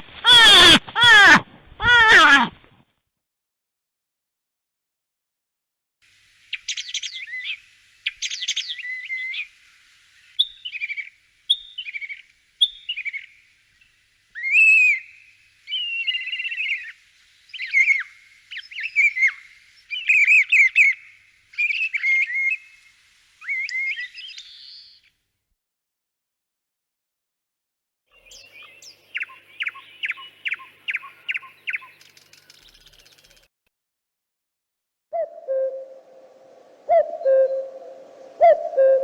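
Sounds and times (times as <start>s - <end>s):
songbird chirping and whistling: 10.4s - 13.3s, 14.4s - 22.7s, 23.4s - 25.0s, 28.2s - 33.4s, 35.1s - 39.0s.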